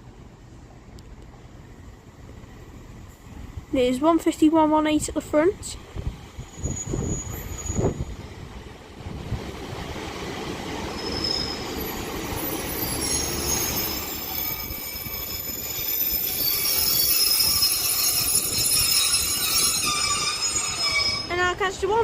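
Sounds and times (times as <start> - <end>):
trains rumbling: 0.0 - 22.0
wheels squealing: 6.4 - 8.2, 10.8 - 21.6.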